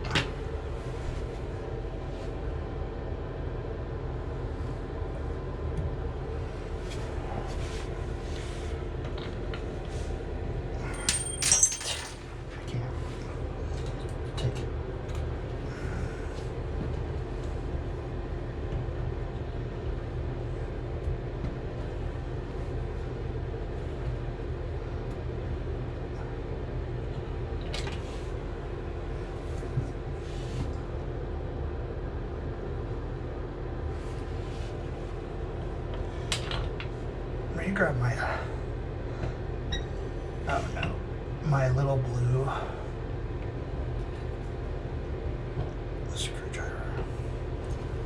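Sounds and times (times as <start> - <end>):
low mechanical hum: 0.0 - 48.0
metal clinks: 10.9 - 12.2.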